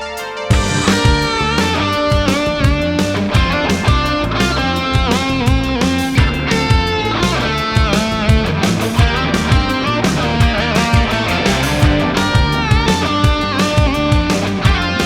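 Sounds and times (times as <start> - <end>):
electric guitar lead: 0.0 - 15.0
instrumental rock band: 0.0 - 15.0.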